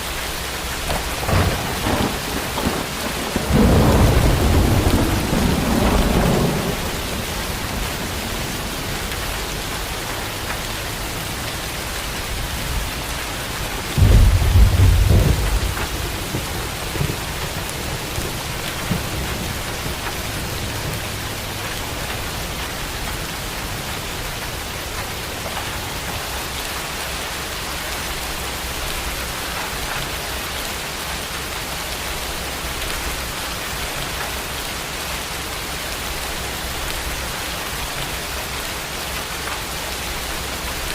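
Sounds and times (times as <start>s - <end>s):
steady rain: 0.0s - 40.9s
thunder rumbling: 0.7s - 30.4s.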